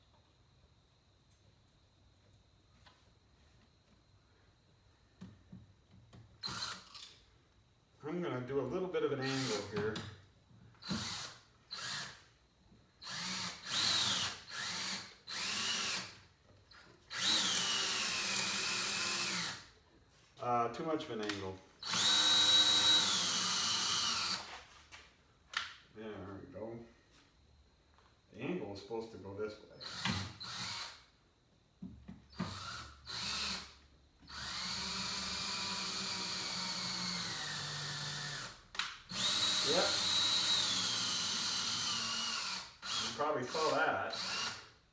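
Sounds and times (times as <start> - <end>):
electric drill driving screw: 6.4 - 7.2, 9.2 - 10.1, 10.8 - 12.2, 13.0 - 16.2, 17.1 - 19.7, 21.8 - 24.5, 29.8 - 31.1, 32.4 - 44.8.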